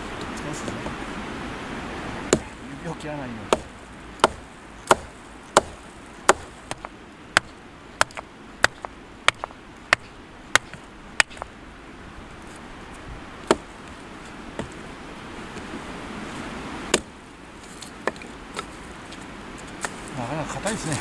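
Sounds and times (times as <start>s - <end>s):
axe chopping wood: 2.3s - 2.7s, 3.5s - 11.6s, 13.4s - 13.9s, 16.9s - 17.2s.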